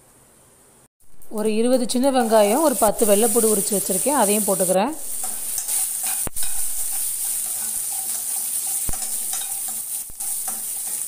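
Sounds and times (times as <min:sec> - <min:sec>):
shallots sizzling in hot oil: 0:01.0 - 0:11.0
metal ladle stirring: 0:05.2 - 0:11.0.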